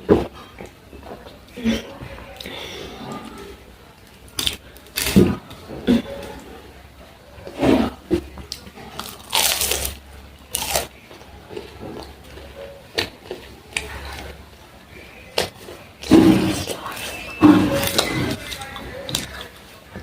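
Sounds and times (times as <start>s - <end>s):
biting and chewing: 7.4s - 14.4s, 15.3s - 20.0s.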